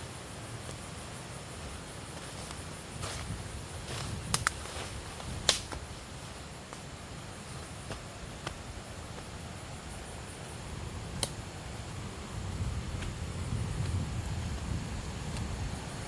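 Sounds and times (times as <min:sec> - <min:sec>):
sharp cracks or snaps: 0:04.3 - 0:04.8, 0:05.4 - 0:05.8, 0:11.2 - 0:11.4
steady low rumble: 0:05.0 - 0:16.0.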